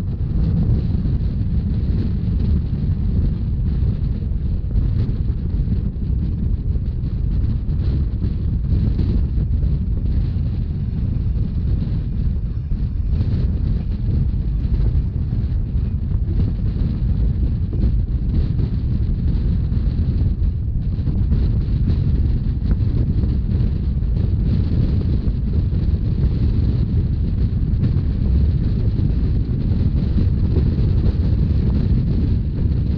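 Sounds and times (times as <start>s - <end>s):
train running at speed: 0.0s - 32.9s
wind buffeting microphone: 0.0s - 32.9s.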